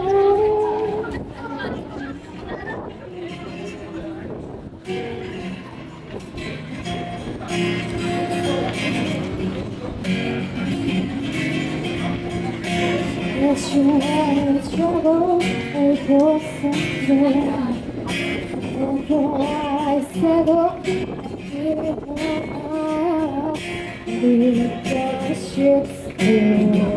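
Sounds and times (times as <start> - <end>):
woman singing: 0.0 - 2.2, 13.1 - 26.9
strummed acoustic guitar: 0.0 - 26.9.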